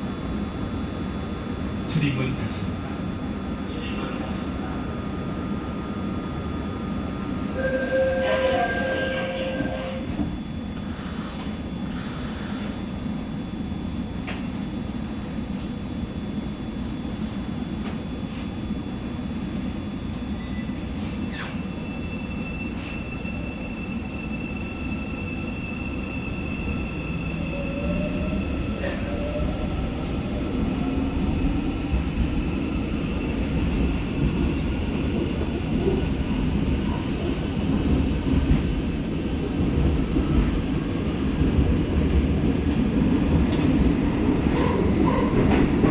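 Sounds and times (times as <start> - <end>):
train running rumble: 26.5 - 45.9.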